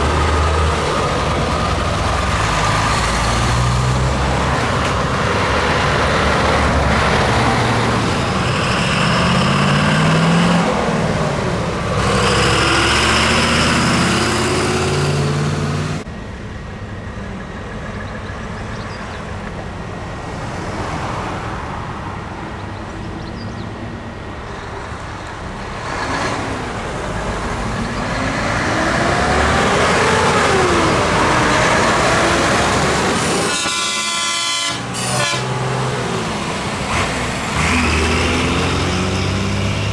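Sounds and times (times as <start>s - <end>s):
trucks driving past: 0.0s - 39.9s
truck horn blasts: 29.8s - 39.6s.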